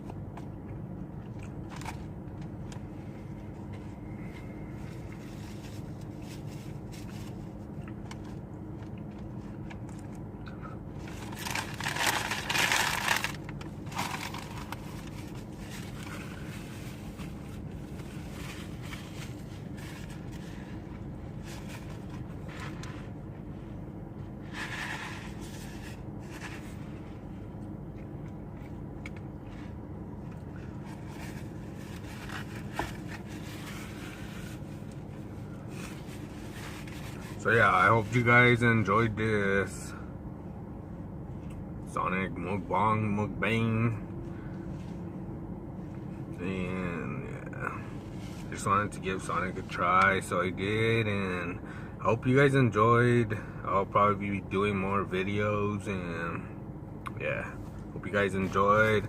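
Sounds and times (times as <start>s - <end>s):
steady low hum: 0.0s - 59.0s
chewing and crunching food: 0.6s - 16.6s
scraping rustle: 11.0s - 23.2s, 24.4s - 27.3s, 30.6s - 38.4s.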